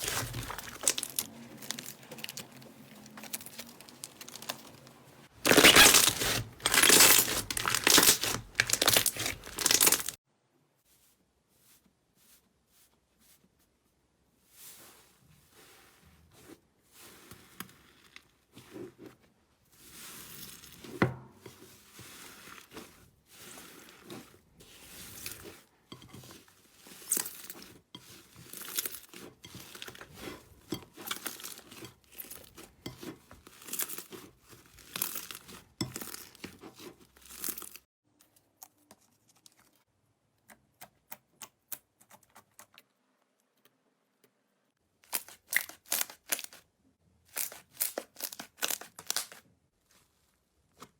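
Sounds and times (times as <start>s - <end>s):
slime crackling and tearing: 0.0s - 10.2s, 26.7s - 37.9s, 45.0s - 46.6s, 47.3s - 49.5s.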